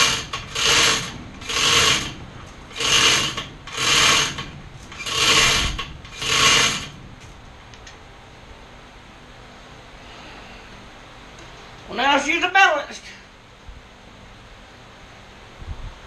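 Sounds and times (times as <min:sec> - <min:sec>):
metal ratchet rasping: 0:00.0 - 0:07.0.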